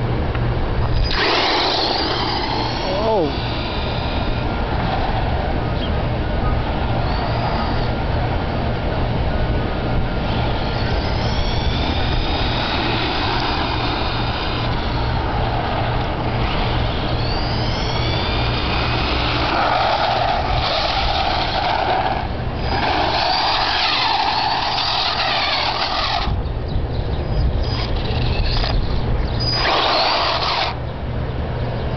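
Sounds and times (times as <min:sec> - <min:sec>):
steady low rumble: 0:00.0 - 0:31.9
electric motor whining: 0:00.9 - 0:05.1, 0:10.3 - 0:26.4, 0:27.6 - 0:30.8.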